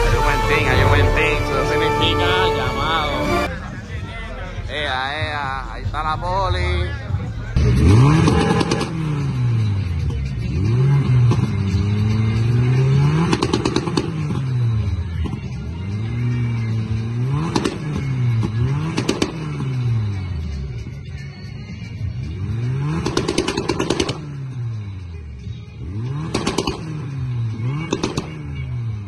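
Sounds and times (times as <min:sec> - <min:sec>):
car engine revving: 0:00.0 - 0:29.0
sharp cracks: 0:13.2 - 0:14.3, 0:18.9 - 0:19.6, 0:26.3 - 0:26.9, 0:27.9 - 0:28.4.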